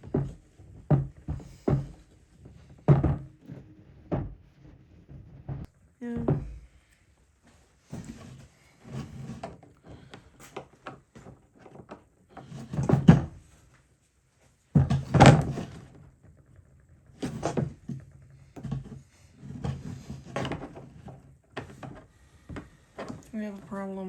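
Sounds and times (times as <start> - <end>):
parts knocking and scraping: 0.0 - 6.9.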